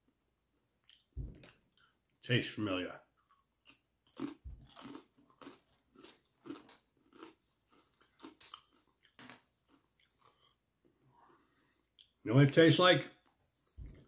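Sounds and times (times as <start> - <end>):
person chewing crisp chips: 3.2 - 12.2.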